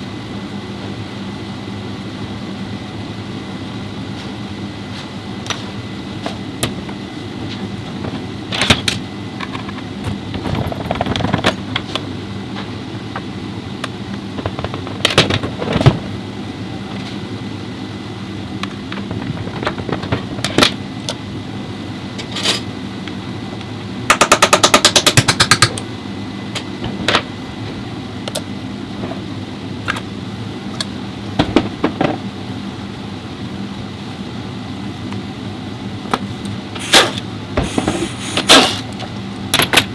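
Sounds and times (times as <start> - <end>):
hand tools knocking and clicking: 24.1 - 25.8
machine hum: 25.6 - 39.4.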